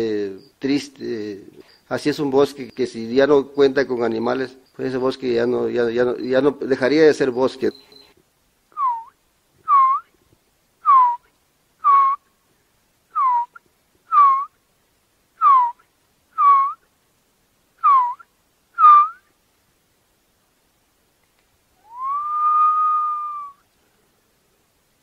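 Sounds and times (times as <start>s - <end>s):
bird whistling clear notes: 21.8s - 23.6s.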